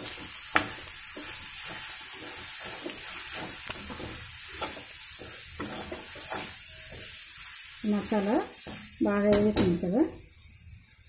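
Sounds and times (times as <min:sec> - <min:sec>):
spoon scraping pan: 0:00.0 - 0:07.2
paste sizzling in hot oil: 0:00.0 - 0:11.0.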